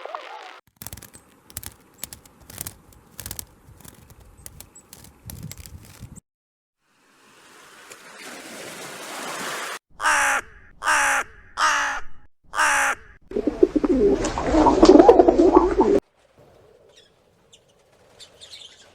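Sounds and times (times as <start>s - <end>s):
bird calls: 16.8s - 18.9s.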